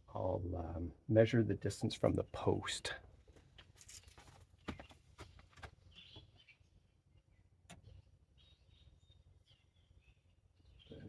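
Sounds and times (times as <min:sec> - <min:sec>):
faint bird chirps: 0:05.9 - 0:11.0.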